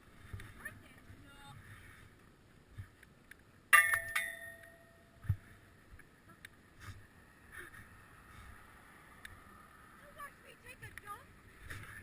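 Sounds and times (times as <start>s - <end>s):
sharp metallic clink: 3.8s - 5.2s.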